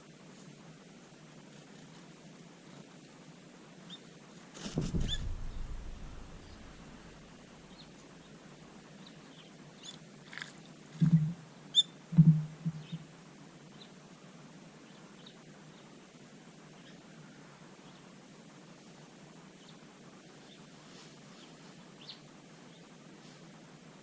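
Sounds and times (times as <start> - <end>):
low thumps: 4.6 - 7.5, 12.2 - 13.0
small birds chirping: 4.7 - 8.0.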